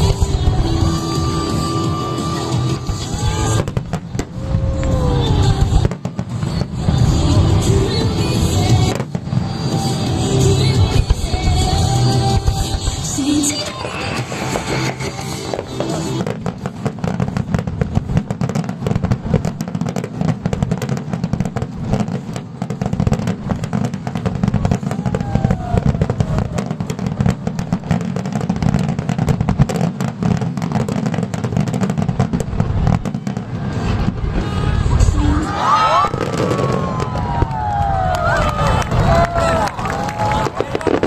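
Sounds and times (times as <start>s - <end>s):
fireworks bangs and crackles: 0.0s - 41.0s
low rumble: 32.4s - 40.8s.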